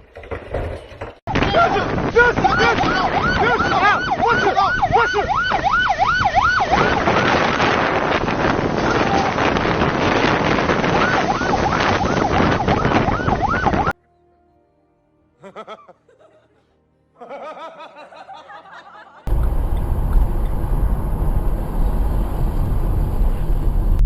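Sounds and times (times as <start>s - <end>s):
loud road noise: 1.3s - 13.9s, 19.3s - 24.0s
emergency siren yelping: 2.3s - 9.6s, 10.2s - 14.0s.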